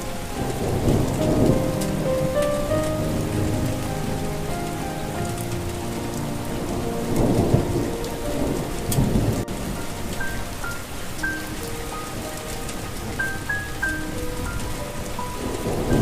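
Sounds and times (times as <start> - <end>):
rolling thunder: 0.0 - 16.0
soft melody of held notes: 0.0 - 16.0
steady rain: 0.0 - 16.0.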